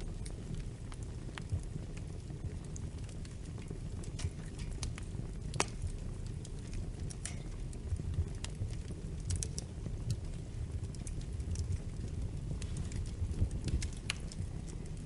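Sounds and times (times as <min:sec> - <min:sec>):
fire popping and snapping: 0:00.0 - 0:15.0
fire rumbling: 0:00.0 - 0:15.0.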